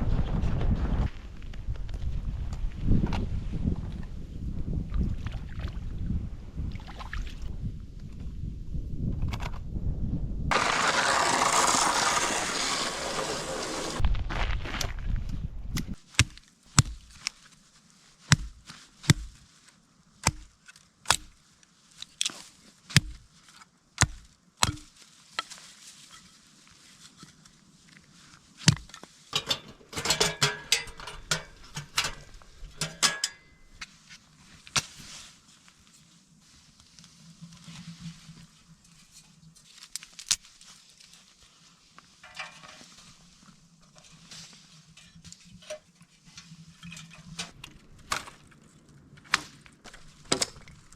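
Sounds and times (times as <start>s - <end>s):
crackling and handling noises: 15.8s - 50.9s
chopping knocks: 18.3s - 19.3s, 20.2s - 20.5s, 22.9s - 23.2s, 24.0s - 24.9s.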